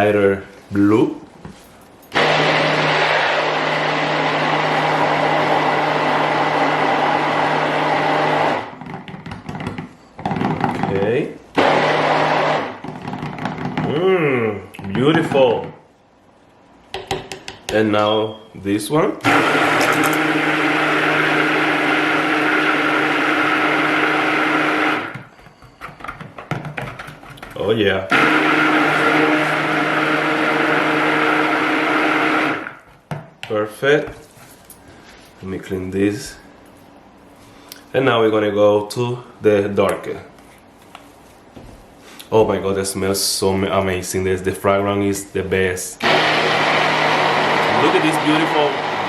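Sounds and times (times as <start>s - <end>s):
stick blender motor running: 2.2s - 8.8s, 11.6s - 12.8s, 19.2s - 25.2s, 28.1s - 32.8s, 46.0s - 49.0s.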